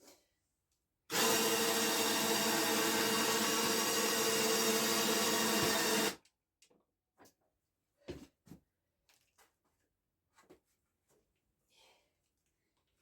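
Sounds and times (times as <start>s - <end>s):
electric motor whining: 1.1s - 6.2s.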